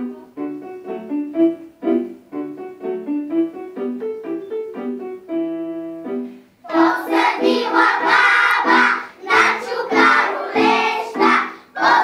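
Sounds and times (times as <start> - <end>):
piano melody: 0.0 - 12.0
children's choir singing: 6.6 - 12.0.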